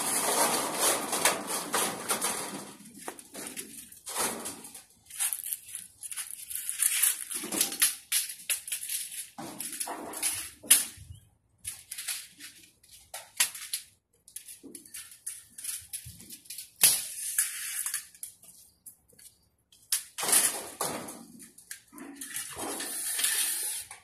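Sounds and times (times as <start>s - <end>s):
metal sheets rattling and scraping: 0.0s - 11.0s, 20.0s - 23.7s.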